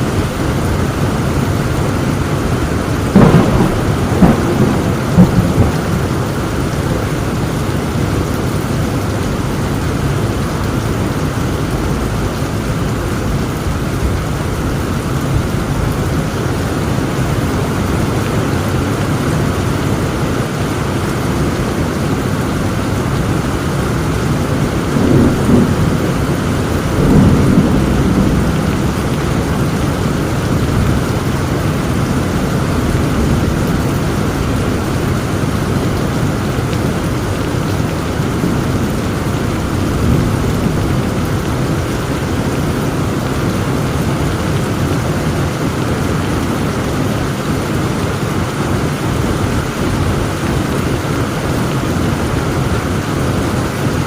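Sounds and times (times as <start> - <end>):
heavy rain falling: 0.0 - 54.0
deep rolls of thunder: 2.4 - 8.3, 23.1 - 37.3, 38.2 - 43.2
sharp thunder cracks: 3.1 - 6.8, 24.7 - 34.5.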